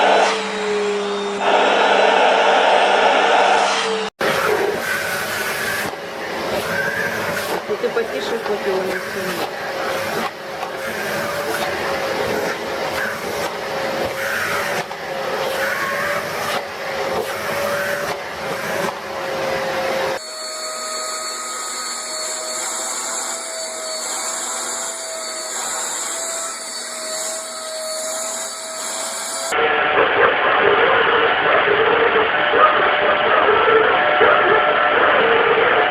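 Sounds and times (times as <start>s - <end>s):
vacuum with wavering whine: 0.0s - 23.0s
vacuum cleaner running: 0.0s - 35.9s.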